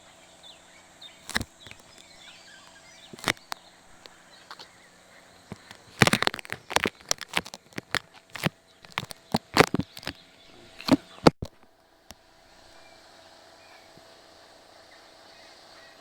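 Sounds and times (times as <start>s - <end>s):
sharp clicks and knocks: 1.2s - 2.1s, 3.1s - 4.7s, 5.5s - 12.2s.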